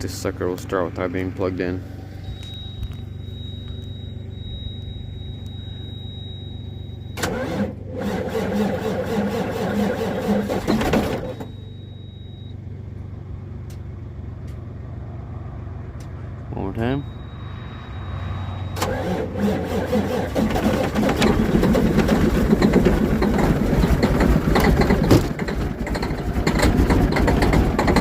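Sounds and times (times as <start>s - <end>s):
low hum: 0.0s - 7.9s, 11.3s - 19.4s
diesel engine cranking: 0.0s - 28.0s
thin high tone: 2.0s - 7.2s, 16.6s - 19.2s.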